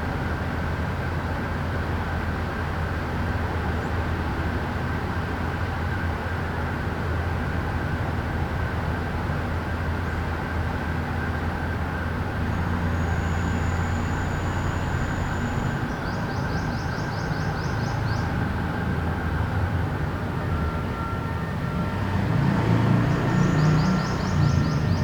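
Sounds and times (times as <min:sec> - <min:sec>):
city traffic hum: 0:00.0 - 0:25.0
thin high whistle: 0:12.9 - 0:15.8.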